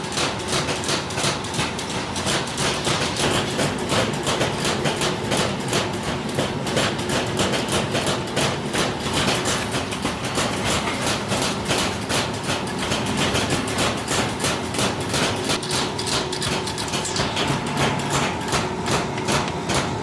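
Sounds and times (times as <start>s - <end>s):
rapid hammering on metal: 0.0s - 20.0s
steady machine hum: 0.0s - 20.0s.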